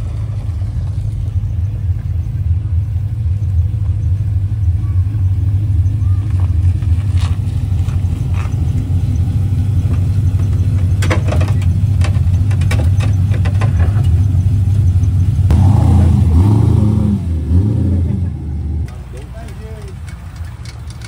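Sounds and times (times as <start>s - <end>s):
sports car engine rumbling: 0.0s - 21.0s.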